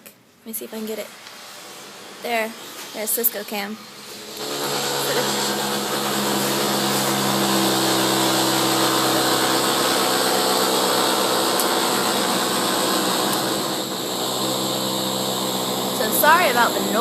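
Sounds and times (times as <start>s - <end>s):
machine motor hum: 3.9s - 17.0s.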